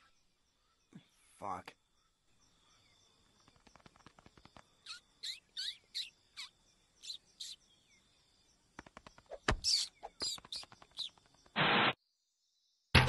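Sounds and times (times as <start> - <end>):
bird chirps sweeping downward: 4.8 - 7.6, 9.3 - 11.3.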